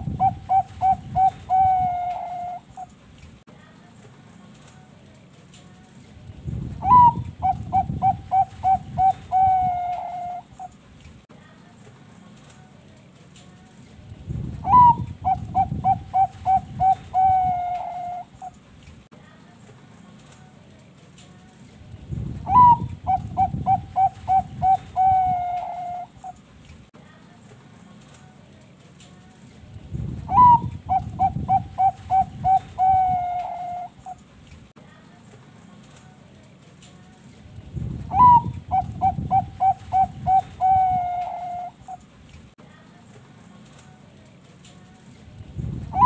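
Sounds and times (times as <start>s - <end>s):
dove cooing: 0.0s - 3.0s, 6.8s - 10.8s, 14.6s - 18.6s, 22.5s - 26.4s, 30.3s - 34.2s, 38.1s - 42.0s.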